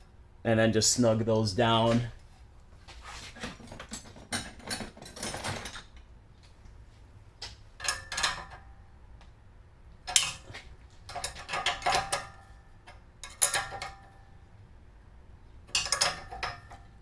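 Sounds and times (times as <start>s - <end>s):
wrench clinking and ratcheting: 13.2s - 14.0s, 15.7s - 16.8s.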